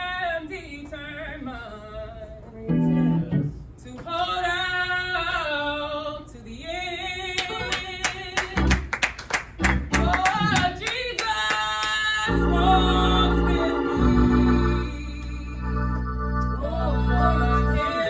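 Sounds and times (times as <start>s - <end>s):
gospel singing: 2.7s - 8.7s, 10.0s - 18.0s
instrumental accompaniment: 12.3s - 18.0s.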